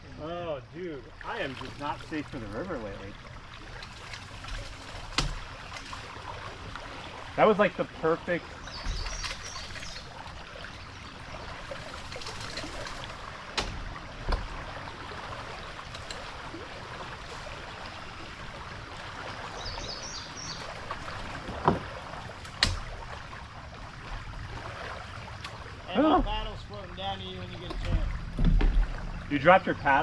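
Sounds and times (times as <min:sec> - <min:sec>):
birds chirping: 0:00.0 - 0:13.3, 0:13.9 - 0:22.3, 0:25.1 - 0:30.0
river water hissing: 0:00.0 - 0:30.0
sharp knocks on kayak: 0:04.5 - 0:05.9, 0:08.8 - 0:09.8, 0:13.5 - 0:14.7, 0:21.4 - 0:23.0, 0:27.6 - 0:29.0.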